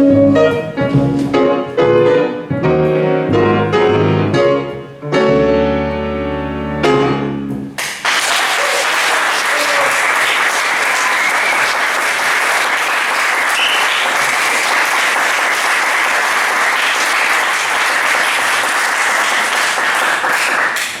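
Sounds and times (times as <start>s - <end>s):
audience applauding: 7.8s - 21.0s.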